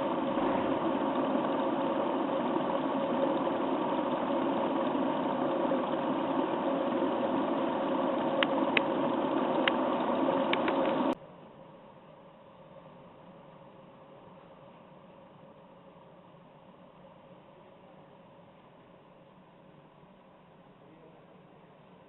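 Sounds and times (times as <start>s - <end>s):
engine idling: 0.0s - 11.2s
sharp clicks: 8.3s - 11.2s.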